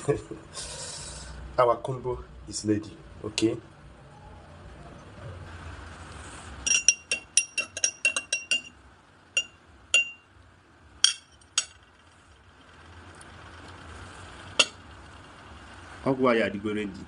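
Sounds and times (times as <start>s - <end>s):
utensil clinking against glass: 6.7s - 8.8s, 9.4s - 10.2s.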